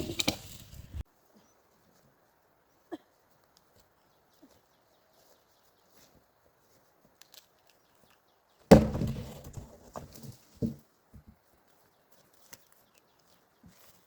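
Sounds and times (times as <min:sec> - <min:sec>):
heavy wood thud: 0:08.7 - 0:09.7.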